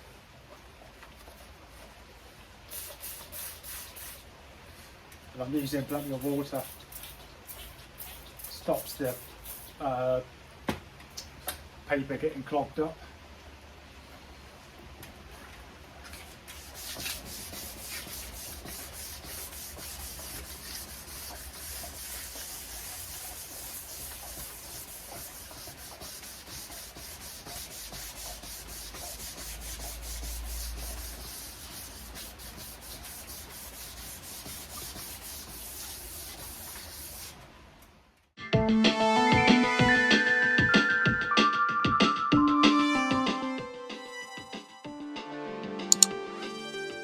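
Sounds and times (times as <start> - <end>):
wet sandpaper rasping: 2.8 - 4.2, 5.5 - 9.8, 16.2 - 37.4.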